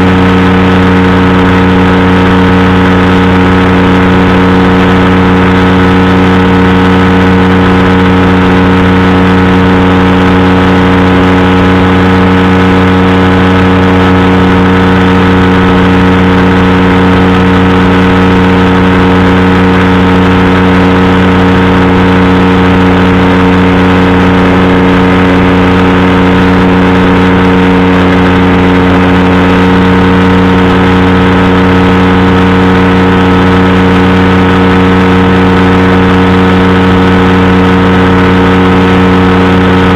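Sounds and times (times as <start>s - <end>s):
engine and propeller running: 0.0s - 39.9s.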